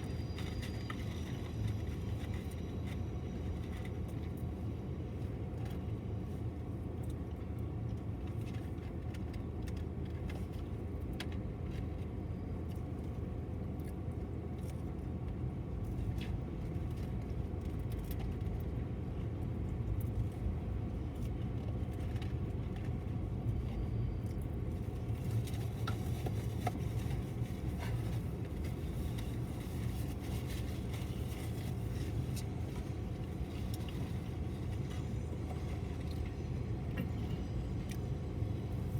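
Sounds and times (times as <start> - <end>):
train wheels rumbling on rail: 0.0 - 6.6.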